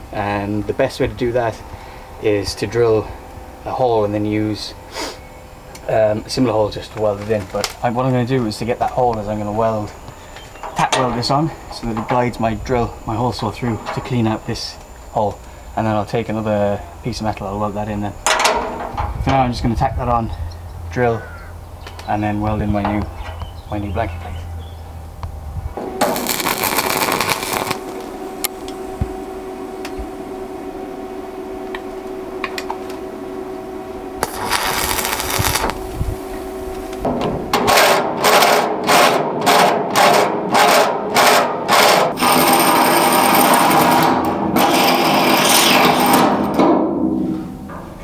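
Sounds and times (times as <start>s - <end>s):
drill motor humming: 25.8s - 37.1s, 37.7s - 46.4s
short even bursts: 26.0s - 28.0s, 34.2s - 35.8s
hole saw cutting steel: 26.0s - 28.1s, 34.2s - 35.8s, 37.6s - 46.7s.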